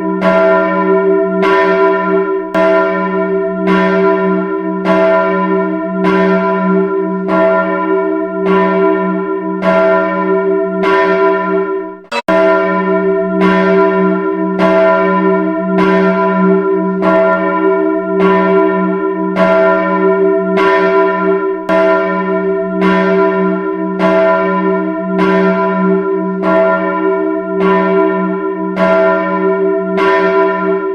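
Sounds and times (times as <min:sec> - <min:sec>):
church bell tolling: 0:00.0 - 0:30.9.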